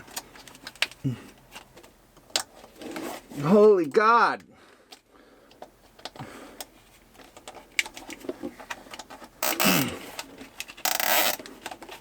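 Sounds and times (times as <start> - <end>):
plastic zip tie ratcheting: 9.0 - 12.0.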